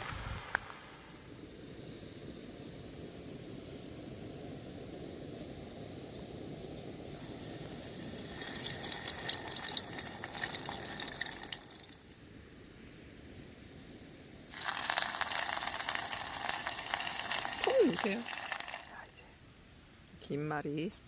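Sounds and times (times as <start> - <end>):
low rumble of wind: 0.0 - 14.6
food sizzling in frying oil: 7.1 - 12.3, 14.5 - 19.1.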